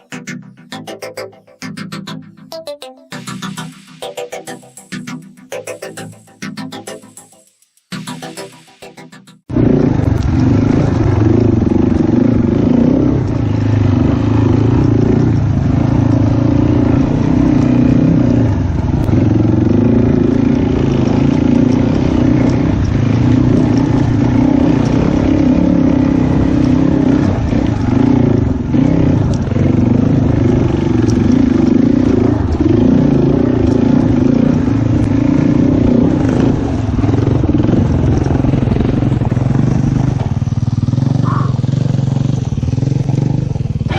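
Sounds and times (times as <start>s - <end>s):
dirt bike engine revving: 8.0s - 43.9s
ride rattling: 9.5s - 43.9s.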